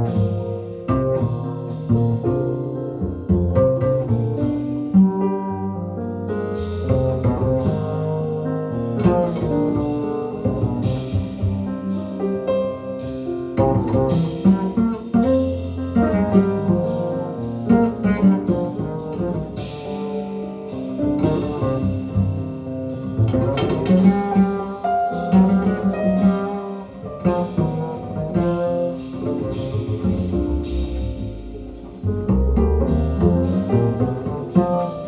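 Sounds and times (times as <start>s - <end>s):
jazz over loudspeakers: 6.0s - 35.0s.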